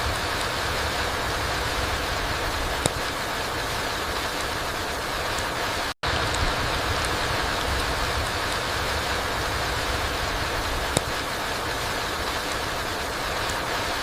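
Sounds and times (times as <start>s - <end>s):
rain falling: 0.0s - 14.0s
sharp drip tick: 2.8s - 3.3s, 10.7s - 11.6s.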